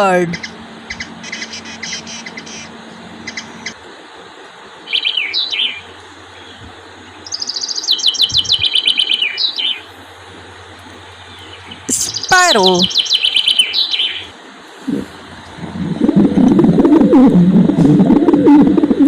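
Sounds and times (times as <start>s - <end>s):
hummingbird chirping: 0.0s - 3.8s, 4.9s - 9.9s, 11.0s - 14.3s.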